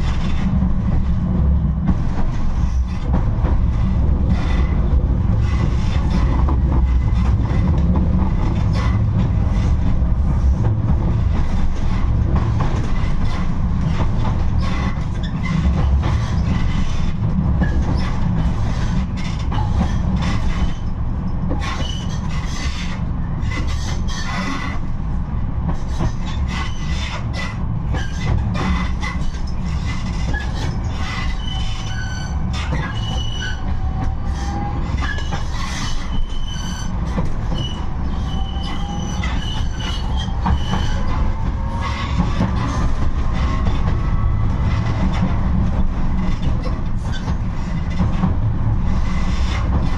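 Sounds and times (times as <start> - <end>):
tram wheels rumbling on rails: 0.0 - 49.9
high wheel squeals: 37.5 - 41.2.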